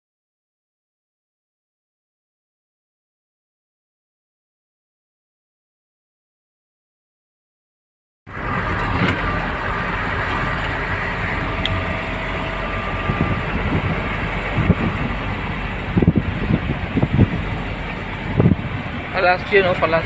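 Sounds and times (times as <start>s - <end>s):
vehicle engine and road noise: 8.3s - 20.0s.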